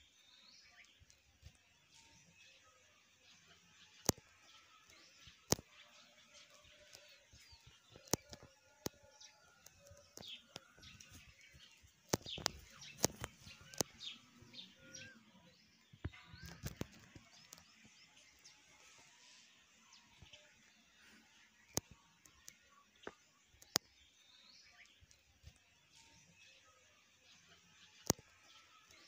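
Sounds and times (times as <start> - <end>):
faint bird chirps and whistles: 0.0 - 18.6
sharp clicks and taps: 12.1 - 14.0.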